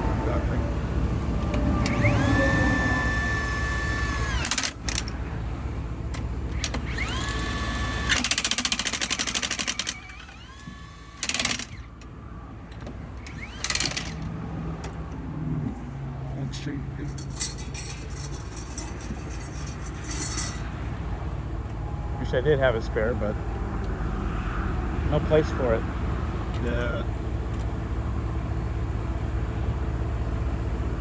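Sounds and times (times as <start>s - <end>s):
impact wrench whining and hammering: 1.6s - 5.2s, 6.5s - 11.9s, 13.2s - 14.3s, 17.2s - 20.8s
low steady hum: 16.4s - 31.0s.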